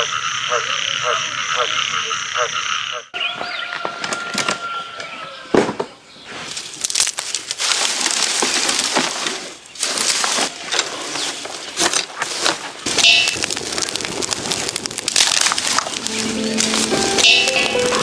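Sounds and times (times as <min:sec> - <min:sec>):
crackling and rustling: 0:05.5 - 0:18.0.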